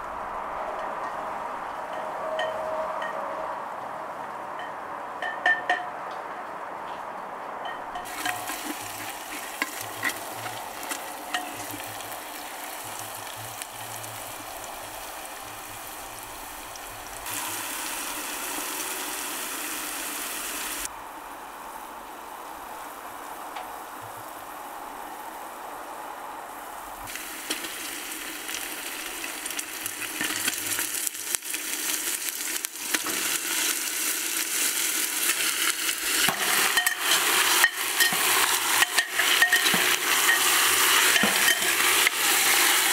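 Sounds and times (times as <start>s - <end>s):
utensil scraping pot: 7.9s - 14.7s, 35.2s - 42.9s
food sizzling in hot oil: 8.0s - 20.9s, 27.1s - 42.9s.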